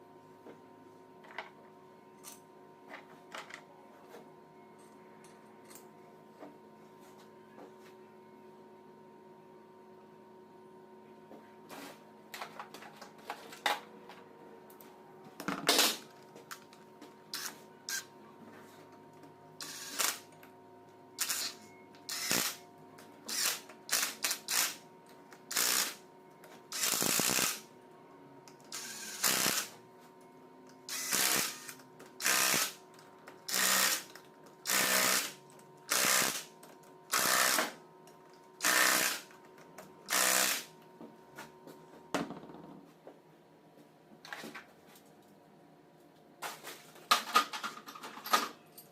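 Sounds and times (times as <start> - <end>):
power tool short bursts: 19.6 - 20.2, 21.2 - 22.6, 26.7 - 27.6, 28.7 - 29.7, 30.9 - 32.8, 34.7 - 35.3, 35.9 - 36.5, 38.6 - 39.2, 40.1 - 40.7.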